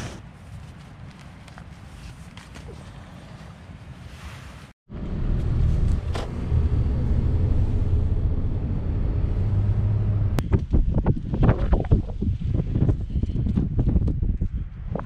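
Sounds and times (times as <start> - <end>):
car engine humming: 4.9 - 10.4.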